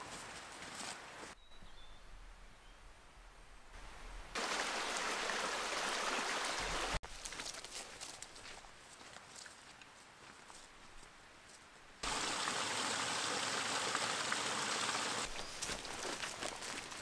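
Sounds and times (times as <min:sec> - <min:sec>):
crackly footsteps: 0:00.0 - 0:01.4, 0:07.0 - 0:12.0, 0:15.3 - 0:17.0.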